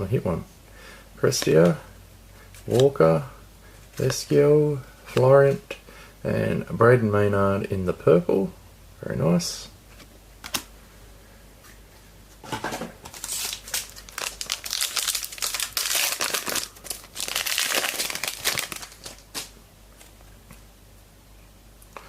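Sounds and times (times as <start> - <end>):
foil wrapper crinkling and tearing: 13.1 - 19.5.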